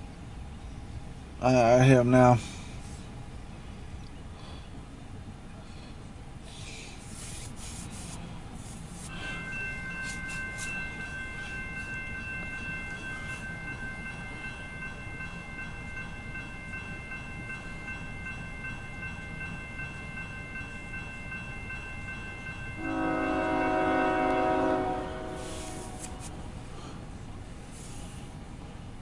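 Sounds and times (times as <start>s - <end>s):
freight train rumble: 0.0s - 29.0s
steady high-pitched tone: 8.8s - 24.4s
locomotive horn: 22.8s - 26.4s.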